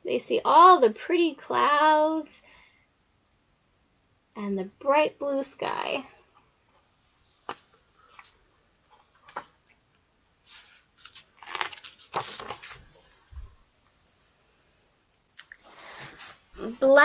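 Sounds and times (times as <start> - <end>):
paper rustling and crinkling: 7.1 - 9.8, 10.4 - 13.6.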